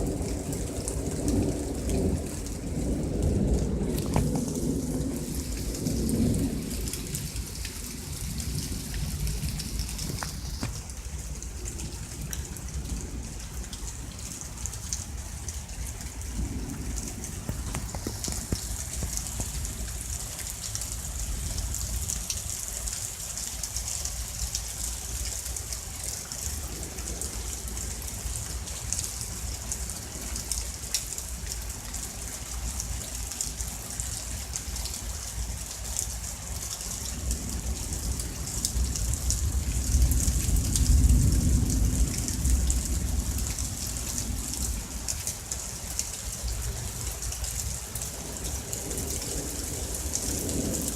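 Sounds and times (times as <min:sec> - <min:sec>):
low thunder rumble: 0:00.0 - 0:22.5, 0:37.1 - 0:45.0, 0:46.6 - 0:50.9
heavy rain falling: 0:00.0 - 0:50.9.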